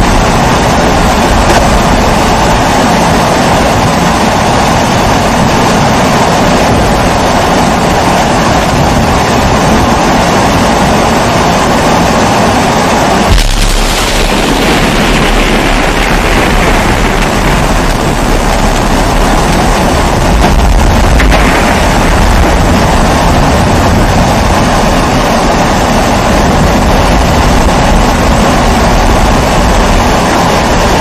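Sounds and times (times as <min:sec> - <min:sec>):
pressure stove burner roaring: 0:13.0 - 0:31.0.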